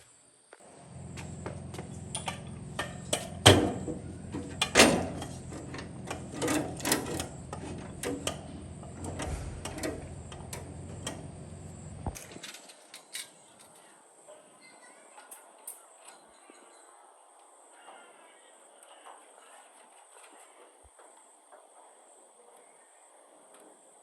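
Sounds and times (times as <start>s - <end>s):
electric motor humming: 0.7s - 12.2s
sharp clicks and knocks: 1.1s - 12.5s.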